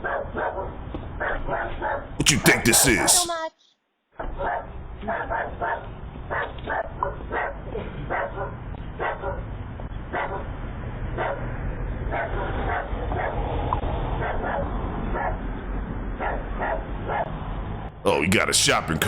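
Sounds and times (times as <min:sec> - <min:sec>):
dog barking: 0:00.0 - 0:02.1, 0:04.2 - 0:09.5, 0:10.1 - 0:10.5, 0:11.2 - 0:11.5, 0:12.1 - 0:13.4, 0:14.2 - 0:15.4, 0:16.2 - 0:17.4.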